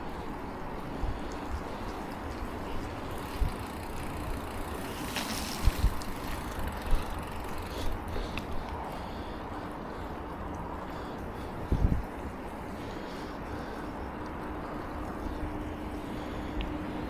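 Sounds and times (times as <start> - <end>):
bicycle wind and road noise: 0.0 - 17.0
wind buffeting on microphone: 0.4 - 8.9, 11.4 - 12.8.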